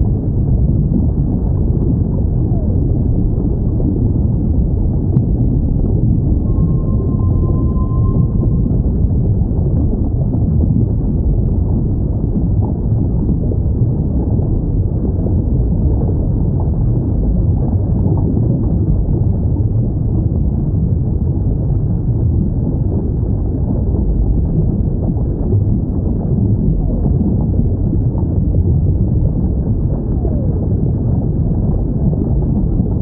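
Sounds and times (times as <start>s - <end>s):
low underwater rumble: 0.0s - 33.0s
high whale call: 6.4s - 9.2s.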